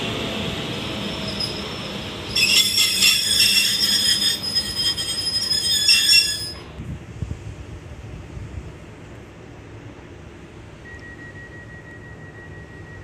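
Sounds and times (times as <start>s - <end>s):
high-pitched metallic train squeal: 0.9s - 6.7s.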